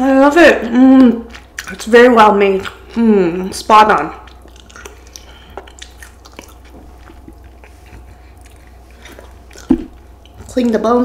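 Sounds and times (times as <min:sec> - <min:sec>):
person chewing: 0:00.9 - 0:10.8
wet mouth clicks and smacks: 0:04.2 - 0:07.8.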